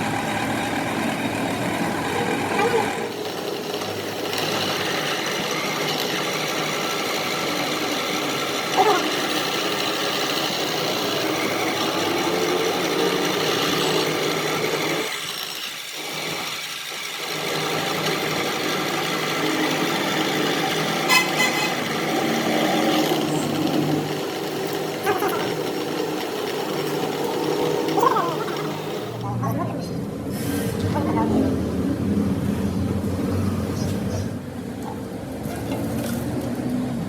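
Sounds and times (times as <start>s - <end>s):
machine humming: 0.0s - 37.0s.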